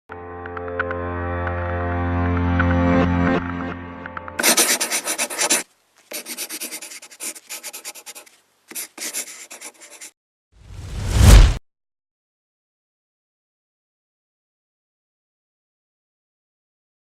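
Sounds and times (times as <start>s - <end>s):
rapid rubbing on hard surface: 4.4s - 10.2s.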